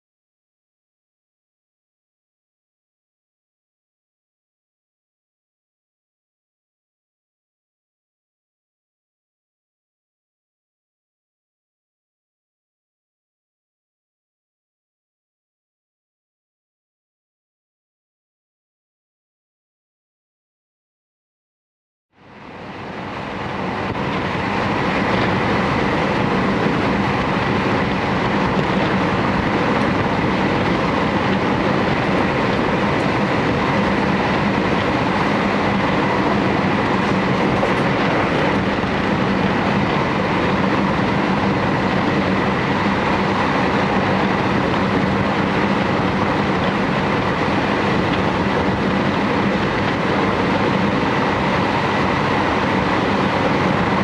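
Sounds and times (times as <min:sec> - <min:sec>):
electric train running noise: 0:22.2 - 0:54.0.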